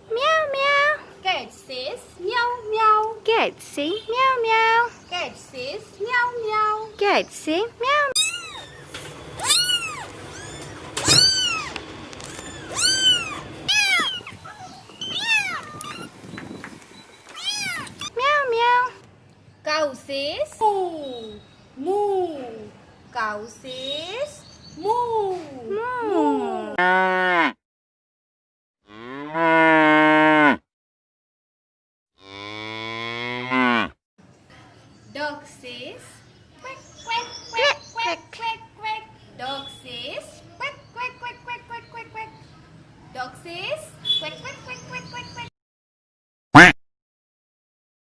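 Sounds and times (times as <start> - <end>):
cat meowing: 9.4 - 14.4, 17.3 - 18.0
cow mooing: 32.2 - 34.0.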